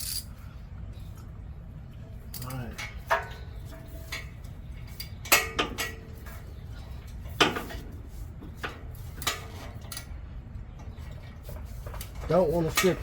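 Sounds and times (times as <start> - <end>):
metal hand tools clanking: 12.3 - 13.0.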